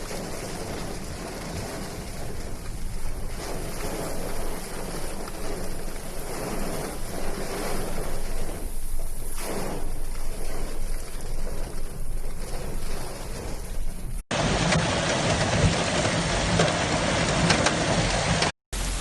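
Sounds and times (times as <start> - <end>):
wind buffeting microphone: 0.0 - 14.2
rushing water: 0.0 - 19.0.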